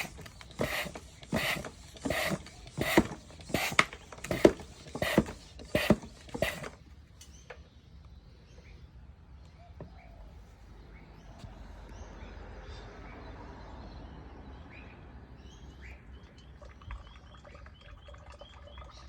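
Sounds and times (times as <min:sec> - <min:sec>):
hand oil pump strokes: 0:00.0 - 0:06.8.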